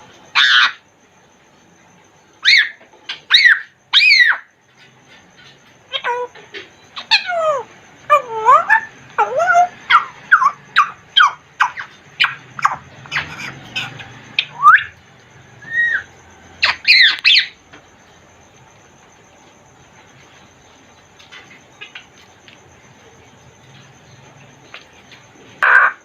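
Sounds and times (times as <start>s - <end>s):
parrot whistles and squawks: 0.4s - 0.8s, 2.4s - 4.5s, 5.9s - 15.0s, 15.6s - 17.6s.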